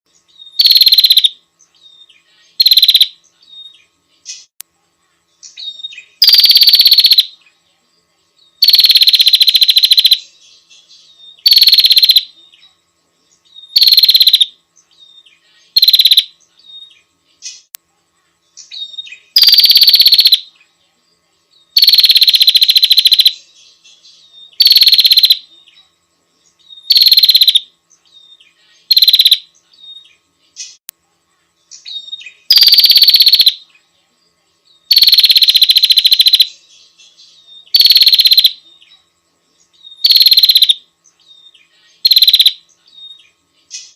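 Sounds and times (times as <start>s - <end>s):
bird rattling trills: 13.8s - 14.5s, 19.4s - 20.4s, 26.9s - 27.6s, 28.9s - 29.4s.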